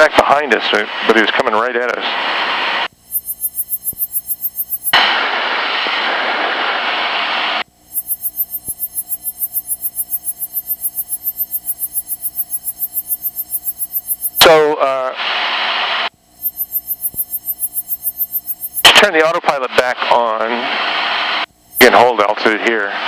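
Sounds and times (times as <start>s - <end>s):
rapidly pulsing electronic beeps: 3.0s - 5.0s, 7.9s - 14.5s, 16.4s - 19.0s.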